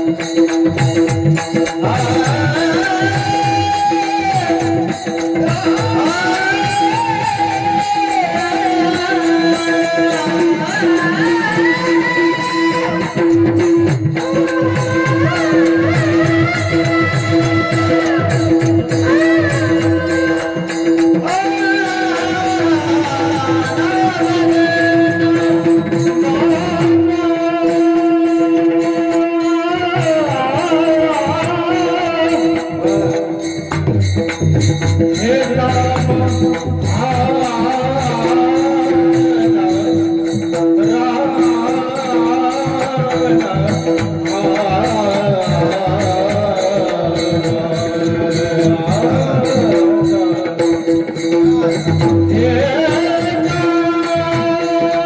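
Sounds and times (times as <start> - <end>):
hand cymbals beat: 0.0 - 55.0
harmonium drone: 0.0 - 55.0
man singing: 0.0 - 55.0.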